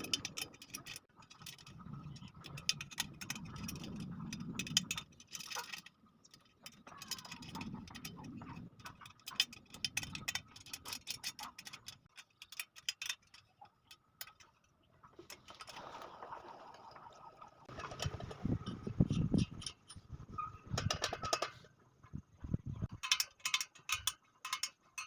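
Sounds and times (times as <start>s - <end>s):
metallic clicks of wire spokes: 0.0s - 15.8s, 17.6s - 25.0s.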